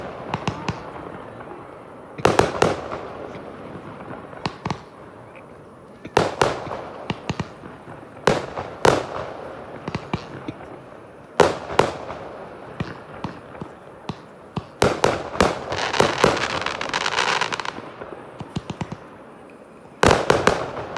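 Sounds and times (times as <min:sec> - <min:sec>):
firework crackling: 0:00.0 - 0:20.9
firework shells bursting: 0:06.0 - 0:19.1.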